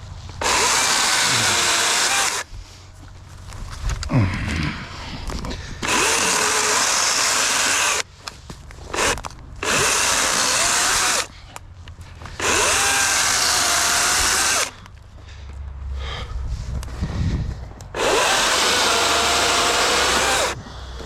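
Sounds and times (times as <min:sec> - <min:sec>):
chainsaw cutting logs: 0:00.4 - 0:02.5, 0:05.8 - 0:08.1, 0:08.8 - 0:11.4, 0:12.2 - 0:14.9, 0:17.9 - 0:20.6.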